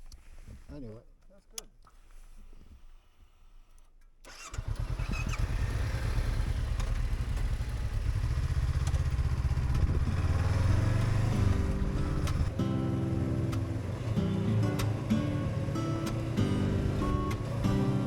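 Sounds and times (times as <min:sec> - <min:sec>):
motorcycle engine running: 0:04.6 - 0:18.0.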